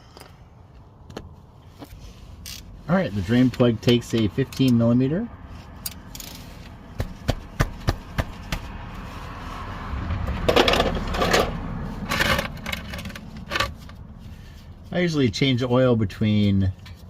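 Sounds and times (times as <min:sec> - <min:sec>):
metal tools scraping and rattling: 0:10.5 - 0:14.0.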